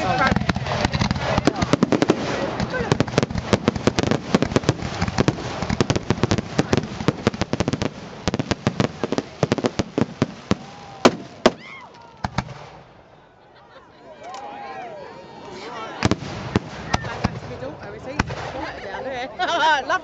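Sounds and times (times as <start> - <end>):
fireworks bangs and crackles: 0.0 - 12.9, 16.0 - 19.0.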